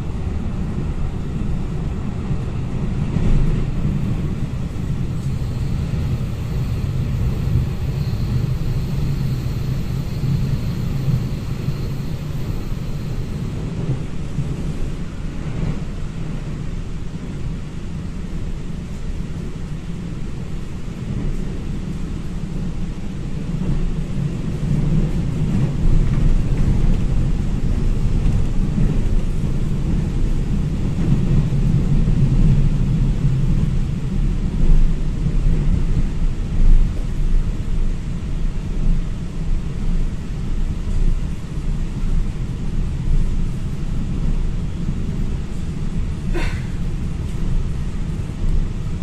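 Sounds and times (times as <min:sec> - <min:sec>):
train rumble: 0:00.0 - 0:49.0.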